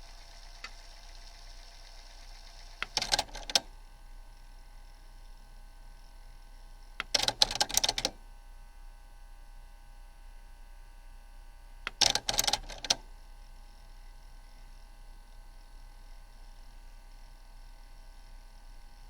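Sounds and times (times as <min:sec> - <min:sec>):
rapid clattering mechanical clicks: 0:00.0 - 0:03.7, 0:07.0 - 0:08.2, 0:11.9 - 0:13.0.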